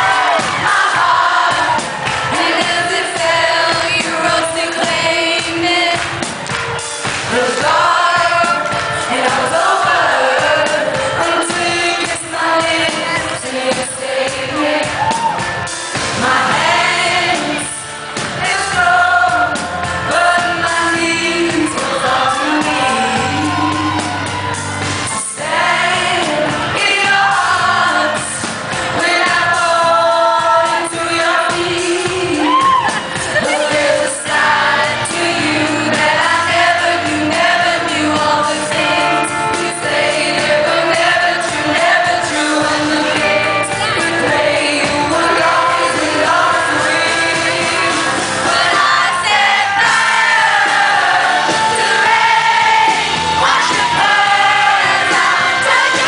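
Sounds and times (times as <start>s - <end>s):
woman singing live: 0.0s - 6.2s, 7.3s - 15.5s, 16.2s - 24.3s, 25.1s - 56.0s
band playing: 0.0s - 56.0s.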